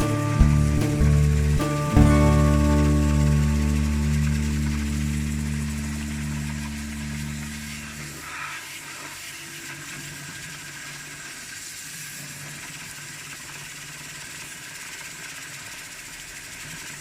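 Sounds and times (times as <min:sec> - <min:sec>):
faint low hum: 0:00.0 - 0:08.2.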